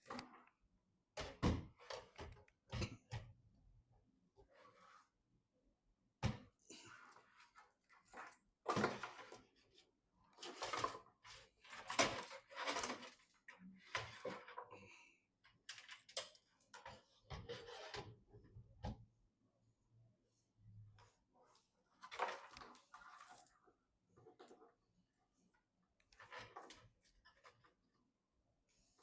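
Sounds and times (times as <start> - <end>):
rustling and scraping of parts: 6.8 - 18.6, 21.0 - 28.2.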